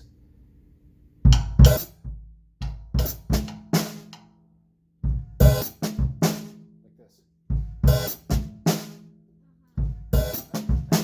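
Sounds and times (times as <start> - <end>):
bass drum: 1.3 - 4.3, 5.0 - 6.6, 7.4 - 9.1, 9.8 - 11.0
hi-hat strokes: 7.9 - 9.0, 10.1 - 11.0.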